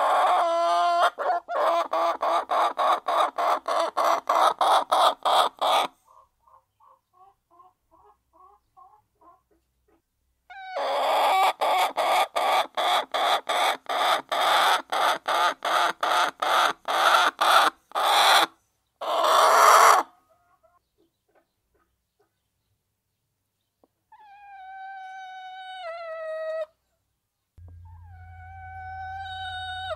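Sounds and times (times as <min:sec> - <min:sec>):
hens clucking softly: 0:00.0 - 0:22.5.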